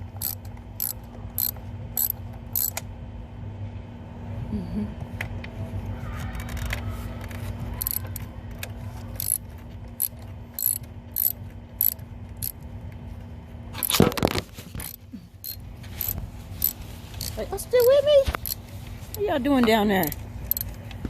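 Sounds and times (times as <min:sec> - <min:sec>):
ratchet wrench clicking: 0:00.1 - 0:02.8, 0:07.8 - 0:08.2, 0:09.2 - 0:09.4, 0:10.0 - 0:12.6, 0:14.8 - 0:19.2, 0:20.0 - 0:20.8.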